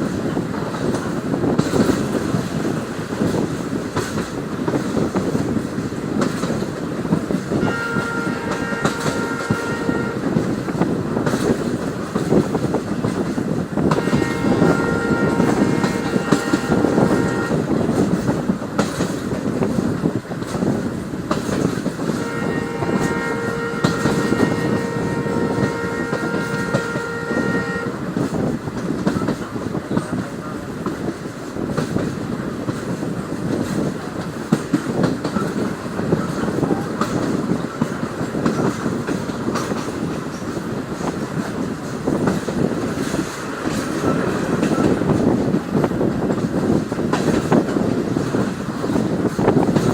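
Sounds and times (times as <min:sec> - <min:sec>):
train rumbling on rails: 0:00.0 - 0:49.9
train horn blast: 0:07.5 - 0:11.3, 0:13.8 - 0:17.9, 0:22.1 - 0:28.2.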